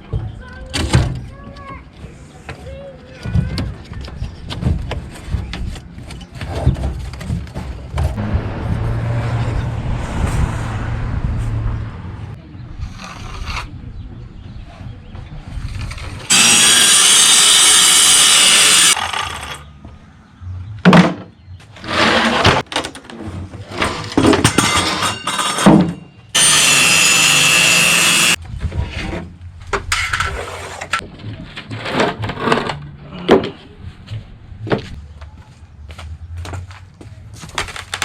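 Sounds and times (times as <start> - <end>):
knocks and scrapes of boards: 3.2 - 8.2, 20.9 - 26.0, 28.6 - 33.8
power saw cutting wood: 16.3 - 19.7, 26.4 - 28.4.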